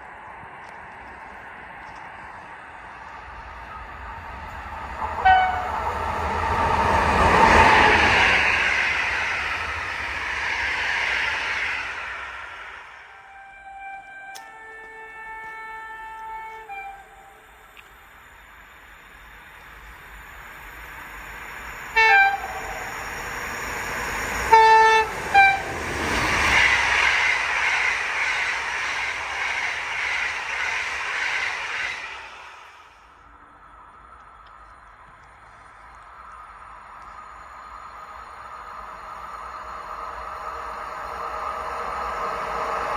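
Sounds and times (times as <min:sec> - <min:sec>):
train passing: 0:00.0 - 0:42.9
train horn blast: 0:05.2 - 0:05.9, 0:13.1 - 0:17.4, 0:22.0 - 0:22.7, 0:24.5 - 0:25.7.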